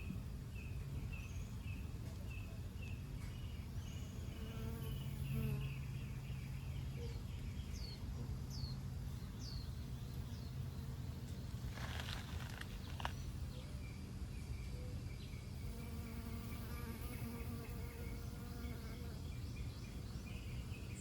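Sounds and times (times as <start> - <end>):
small birds chirping: 0.0 - 21.0
flying insect buzzing: 4.3 - 5.8, 15.6 - 19.2.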